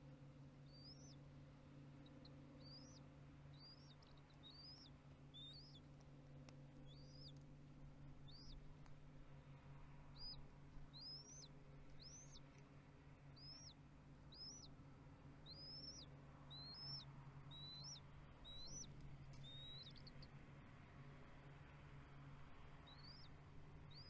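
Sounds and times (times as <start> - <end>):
steady low hum: 0.0 - 24.0
eagle whistled chirps: 11.0 - 12.4, 13.4 - 14.7, 15.5 - 20.2, 22.9 - 23.3.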